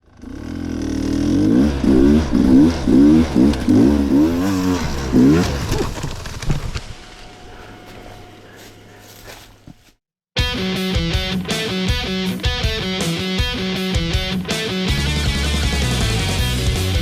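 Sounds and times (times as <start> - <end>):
dirt bike engine revving: 0.0 - 9.7.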